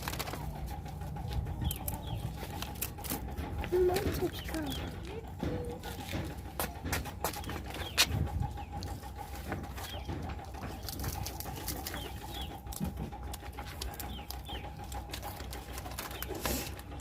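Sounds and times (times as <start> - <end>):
birds chirping and cooing: 0.0 - 17.0
close-up chewing: 0.0 - 17.0
steady hum: 0.0 - 17.0.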